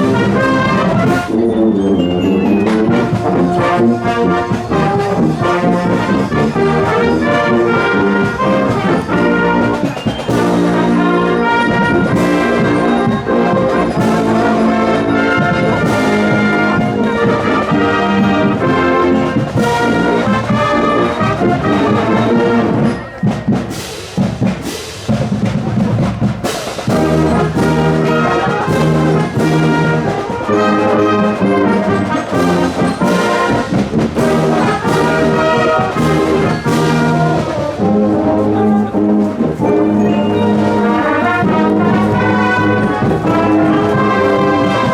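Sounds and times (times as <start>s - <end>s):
sharp drum beats: 0.0s - 30.8s
marching brass band playing: 0.0s - 44.9s.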